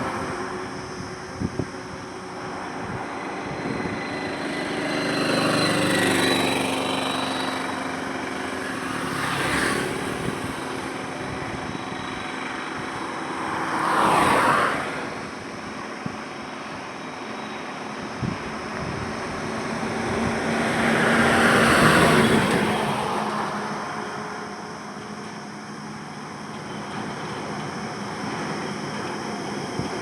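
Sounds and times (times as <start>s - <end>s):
steady road noise: 0.0s - 30.0s
vehicles passing: 0.0s - 30.0s.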